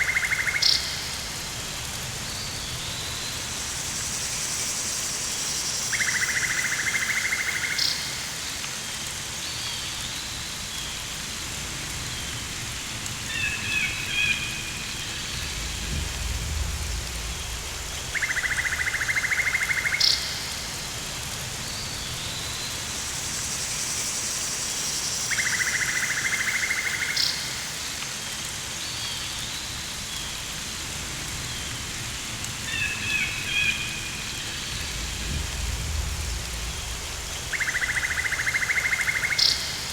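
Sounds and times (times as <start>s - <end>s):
rain-like hiss: 0.0s - 39.9s
low rumble: 14.6s - 19.2s, 33.8s - 38.4s
bird-like chirps: 34.5s - 39.9s.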